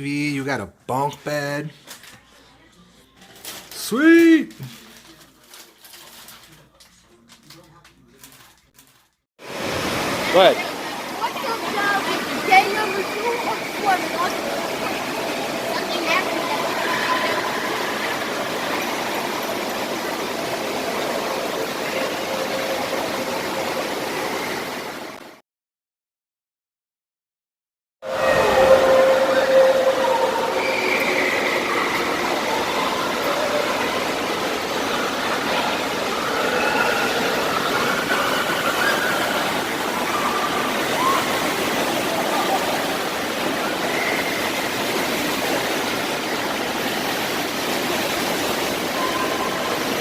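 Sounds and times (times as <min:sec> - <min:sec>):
faint distant voices: 0:01.8 - 0:03.8
rushing water: 0:09.4 - 0:25.4, 0:28.1 - 0:50.0.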